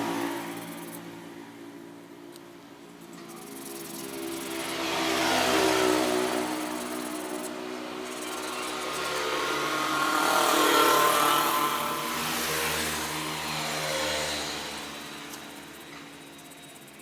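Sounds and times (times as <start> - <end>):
small machine motor humming: 3.0 - 17.0.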